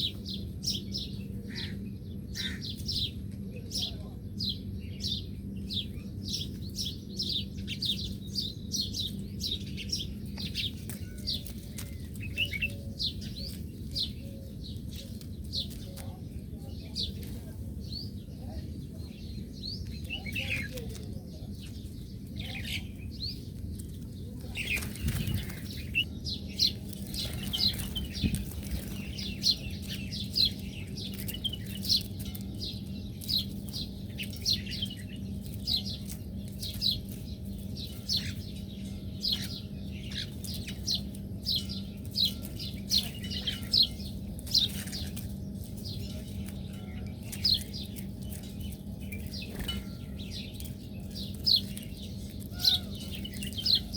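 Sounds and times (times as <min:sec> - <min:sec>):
low steady hum: 0:00.0 - 0:53.9
small birds chirping: 0:00.0 - 0:53.9.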